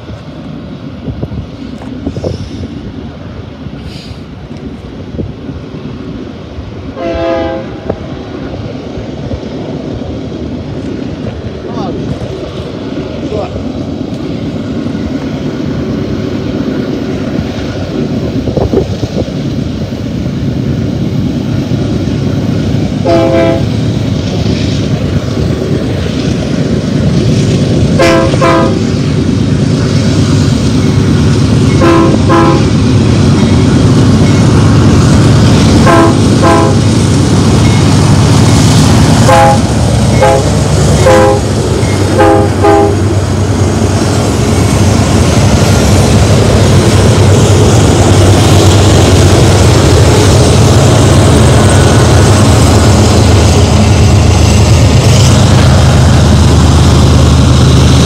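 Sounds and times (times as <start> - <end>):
diesel locomotives rumbling: 0.0 - 58.0
locomotive air horn blasts: 7.0 - 7.8, 23.0 - 23.7, 28.0 - 28.8, 31.8 - 32.7, 35.8 - 36.8, 39.2 - 41.5, 42.2 - 43.0.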